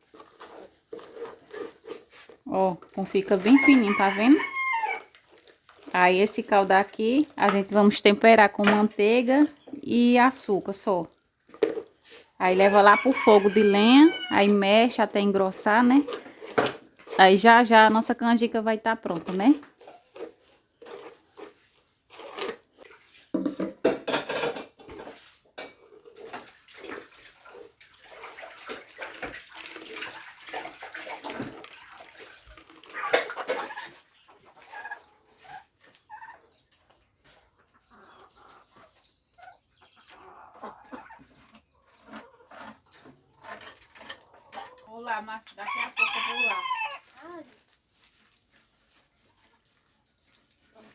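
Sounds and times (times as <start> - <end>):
chickens clucking: 2.6 - 5.2, 11.9 - 16.4, 29.1 - 47.1
running water: 26.2 - 33.7.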